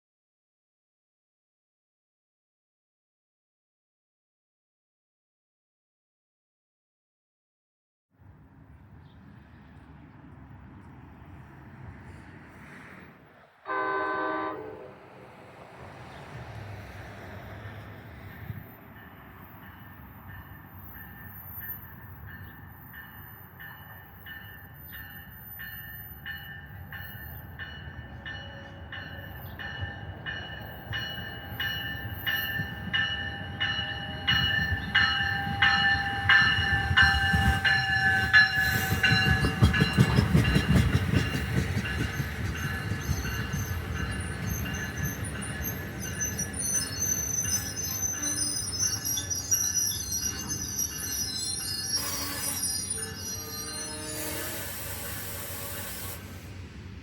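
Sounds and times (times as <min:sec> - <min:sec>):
passenger train passing: 0:08.2 - 0:57.0
high train whine: 0:08.3 - 0:57.0
wheels clicking over rail joints: 0:34.7 - 0:46.6.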